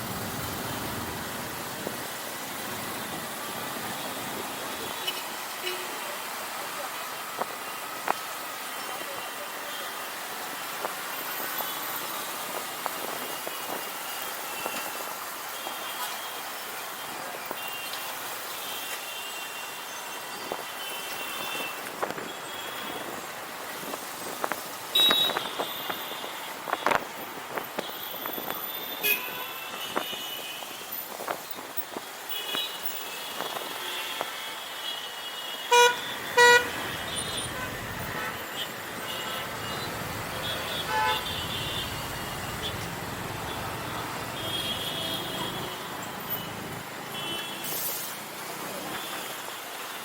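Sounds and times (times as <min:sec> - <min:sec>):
city traffic noise: 0:00.0 - 0:50.0
road noise: 0:00.0 - 0:50.0
vehicle horn beep: 0:24.9 - 0:27.0, 0:28.0 - 0:30.7, 0:35.6 - 0:42.8.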